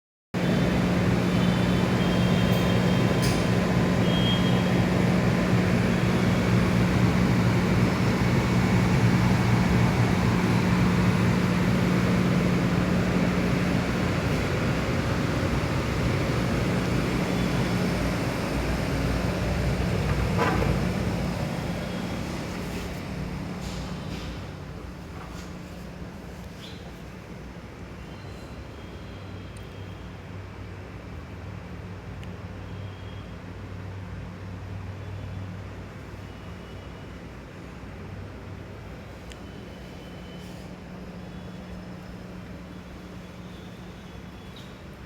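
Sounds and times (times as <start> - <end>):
mechanical hum with rushing rumble: 0.4 - 28.1.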